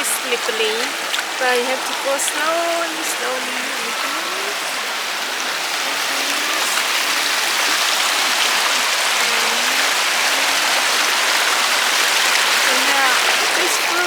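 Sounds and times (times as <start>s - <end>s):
river water rushing over rocks: 0.0s - 14.0s.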